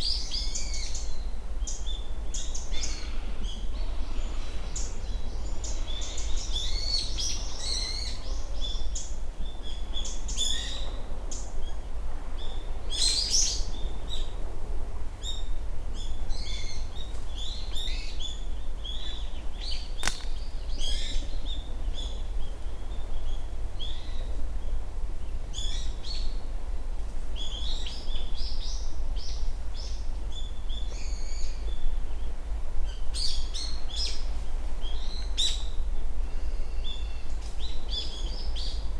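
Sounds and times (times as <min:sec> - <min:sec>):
sharp click: 0:20.0 - 0:20.4.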